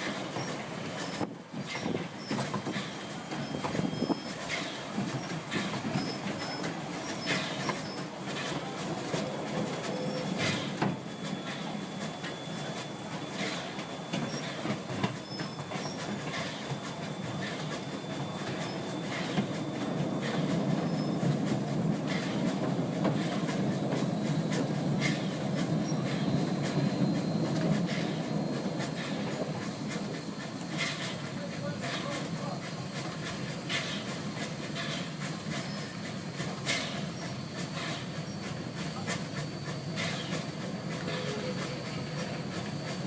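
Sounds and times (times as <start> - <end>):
steam train rumbling: 0.0 - 43.0
wheels clicking over rail joints: 0.0 - 43.0.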